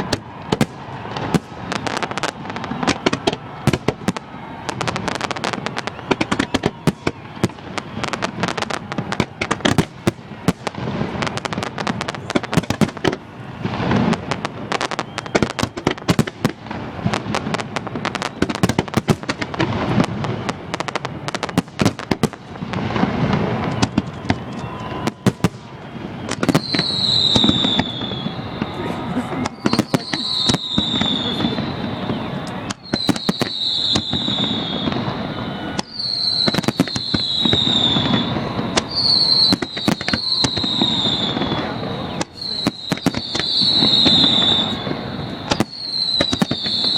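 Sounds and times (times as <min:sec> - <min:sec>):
deep fireworks booms: 0:00.0 - 0:46.9
fireworks bangs and crackles: 0:00.0 - 0:46.9
high whistle: 0:01.1 - 0:09.5, 0:14.8 - 0:16.1, 0:18.0 - 0:18.7, 0:23.4 - 0:46.9.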